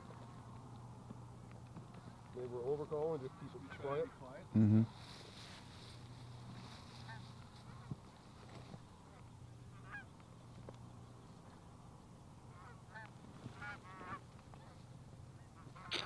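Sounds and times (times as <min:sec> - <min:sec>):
distant geese honking: 0:02.7 - 0:04.5, 0:06.0 - 0:08.2, 0:09.0 - 0:10.2, 0:12.4 - 0:16.0.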